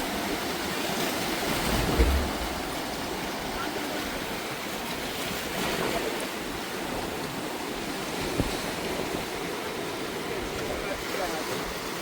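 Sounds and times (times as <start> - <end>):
sea waves and surf: 0.0 - 12.0
short knock: 1.7 - 2.8.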